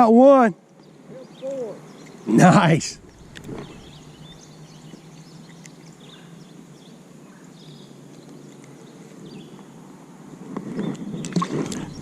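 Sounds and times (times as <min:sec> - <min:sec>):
low steady hum: 0:02.0 - 0:06.9, 0:11.4 - 0:12.0
bird chirps: 0:03.0 - 0:08.0.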